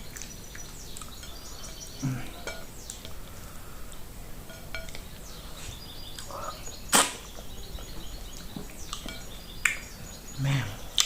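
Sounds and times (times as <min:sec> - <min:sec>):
sharp loud click: 0:06.9 - 0:07.3.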